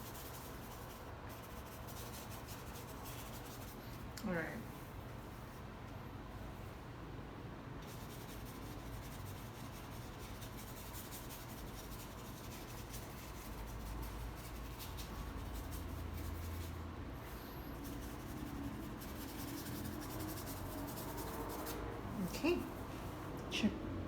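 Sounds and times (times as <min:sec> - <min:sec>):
paintbrush scratching on canvas: 0:00.0 - 0:04.2, 0:07.8 - 0:22.9.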